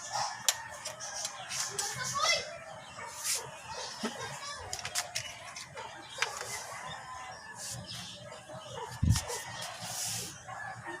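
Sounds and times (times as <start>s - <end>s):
chickens clucking: 2.8s - 11.0s.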